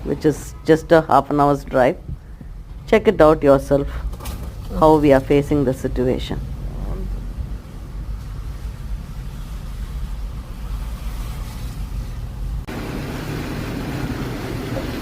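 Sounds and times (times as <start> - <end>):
car engine and road rumble: 2.0 - 15.0
broad rushing noise: 6.3 - 15.0.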